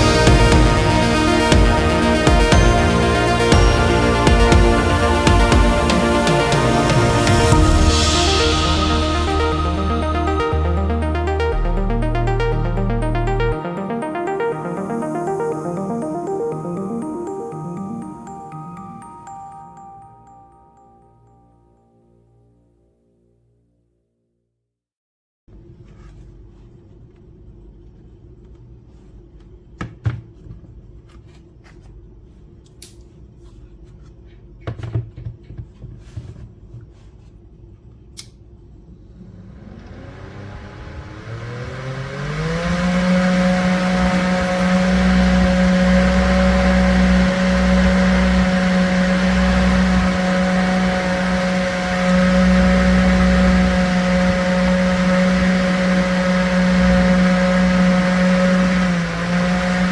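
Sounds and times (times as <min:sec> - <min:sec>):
fan motor whine and whir: 0:38.9 - 0:59.9.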